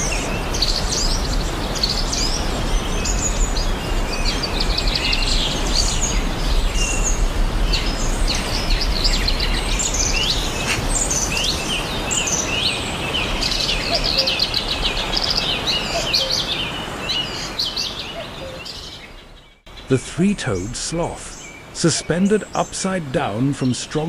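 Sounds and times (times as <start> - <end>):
birds chirping in chorus: 0.0 - 24.0
background hiss: 19.7 - 24.0.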